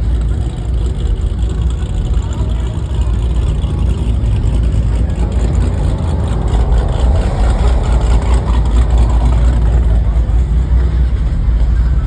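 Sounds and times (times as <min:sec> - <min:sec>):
car engines rumbling: 0:00.0 - 0:12.0.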